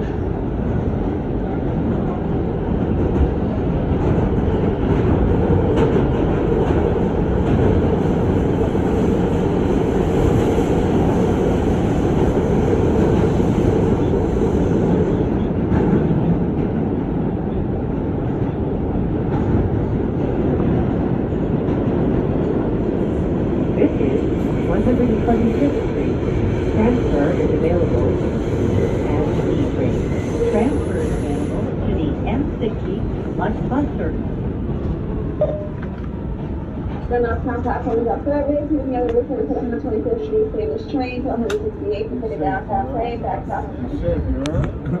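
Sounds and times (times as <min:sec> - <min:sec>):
subway car rumbling on rails: 0:00.0 - 0:45.0.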